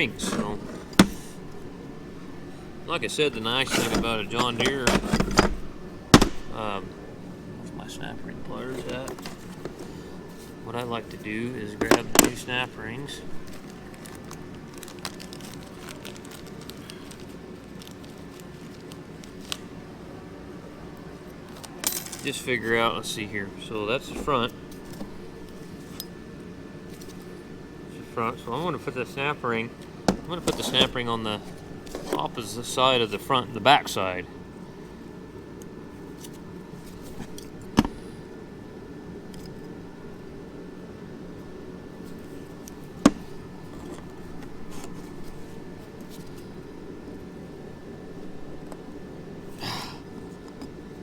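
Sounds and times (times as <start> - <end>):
steady low hum: 0.0 - 51.0
small parts clicking and crinkling: 13.4 - 19.6.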